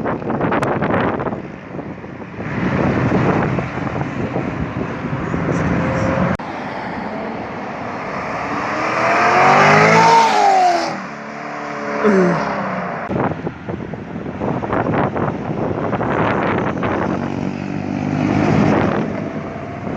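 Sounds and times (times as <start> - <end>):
sports car engine revving: 2.2 - 13.2, 16.6 - 19.9.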